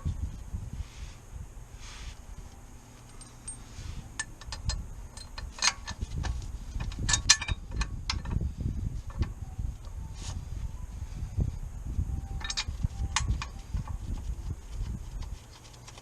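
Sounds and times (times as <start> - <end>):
metallic clinks and clicks: 3.0 - 6.0, 6.8 - 8.4, 12.4 - 13.9.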